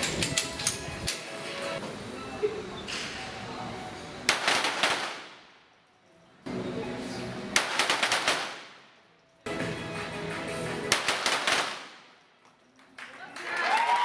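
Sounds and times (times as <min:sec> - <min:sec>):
background music with steady tones: 0:00.0 - 0:13.6
pistol shot volleys: 0:04.3 - 0:05.4, 0:07.6 - 0:08.8, 0:10.9 - 0:12.0.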